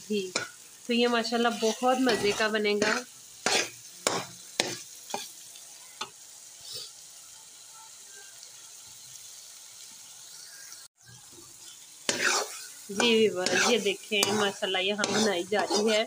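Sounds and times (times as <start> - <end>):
food sizzling in a pan: 0.0 - 16.0
metal spoon scraping pan: 0.3 - 5.3, 11.6 - 16.0.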